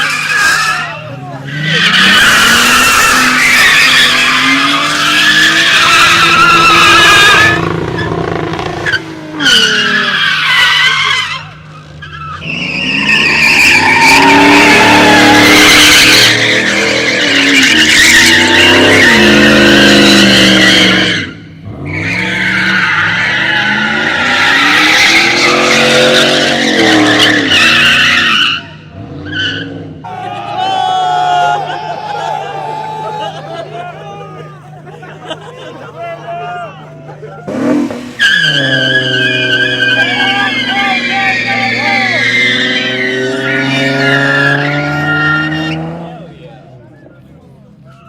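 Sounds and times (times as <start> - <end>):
car engine revving high: 0.0 - 10.2, 12.4 - 31.0, 37.4 - 46.4
tires squealing: 0.0 - 48.0.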